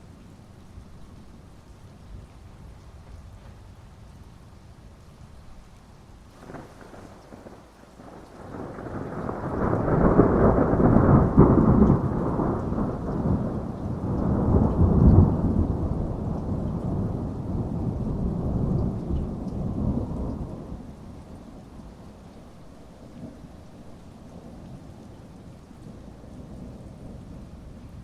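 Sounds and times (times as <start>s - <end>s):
steady rain falling: 0.0s - 28.0s
rolling thunder rumble: 6.4s - 28.0s.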